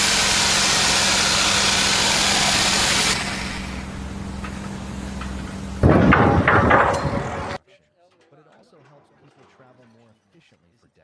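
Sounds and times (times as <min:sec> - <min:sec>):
engine running: 0:00.0 - 0:07.6
loud hiss: 0:00.0 - 0:07.6.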